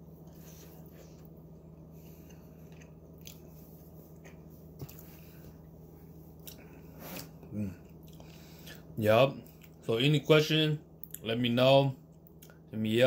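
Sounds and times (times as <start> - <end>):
person chewing soft food: 0.0 - 9.8, 12.1 - 12.7
steady low hum: 0.0 - 13.0.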